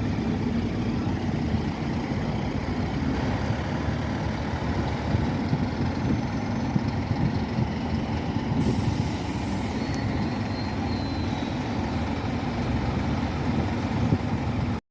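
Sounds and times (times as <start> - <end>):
bus diesel engine rumble: 0.0 - 14.8
road and body noise: 0.0 - 14.8.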